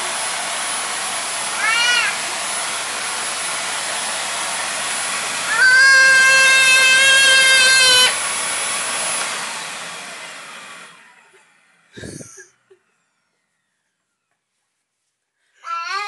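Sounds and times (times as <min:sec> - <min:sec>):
vacuum cleaner motor whining: 0:00.0 - 0:14.2.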